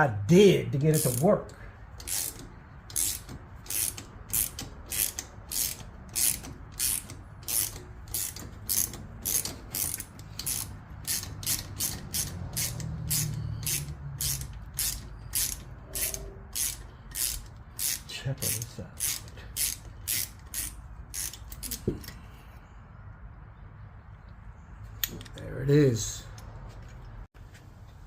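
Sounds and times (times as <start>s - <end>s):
ratchet wrench clicking: 0.9s - 22.2s.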